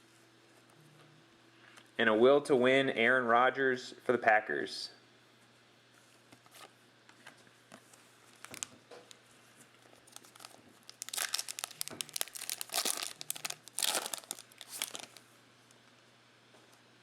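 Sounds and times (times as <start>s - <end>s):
foil wrapper crinkling and tearing: 8.3s - 9.2s, 10.0s - 15.2s
cards being handled: 10.0s - 15.2s.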